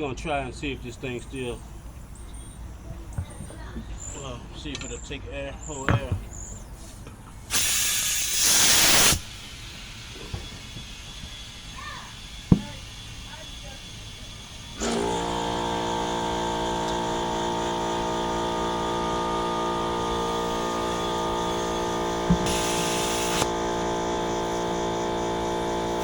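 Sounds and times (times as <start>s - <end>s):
air compressor motor running: 0.0s - 26.0s
air hissing: 0.5s - 5.0s, 5.6s - 26.0s
valve click: 6.6s - 11.3s, 12.4s - 13.3s, 14.0s - 26.0s.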